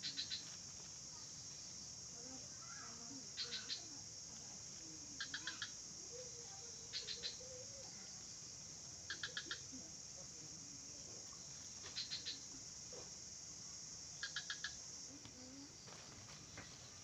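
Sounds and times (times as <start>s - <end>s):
insects droning: 0.0s - 17.0s
small bird calling: 3.4s - 3.9s, 5.2s - 8.1s, 9.1s - 9.8s.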